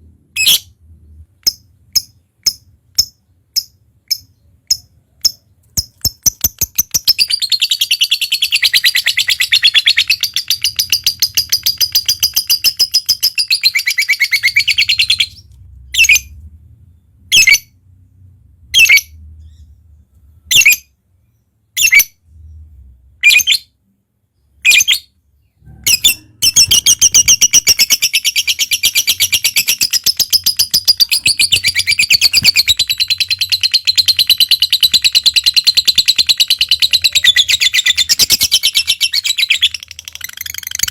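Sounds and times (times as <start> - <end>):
lovebird chattering trill: 25.9 - 40.9.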